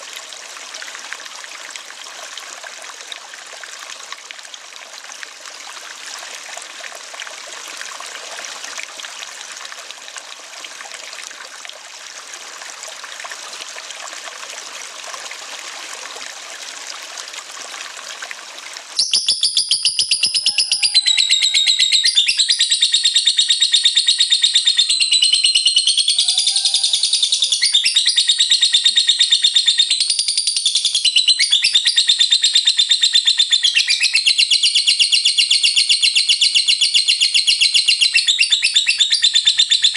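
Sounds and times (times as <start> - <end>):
running water rushing: 0.0 - 19.1
lovebird rattling trill: 19.0 - 28.7.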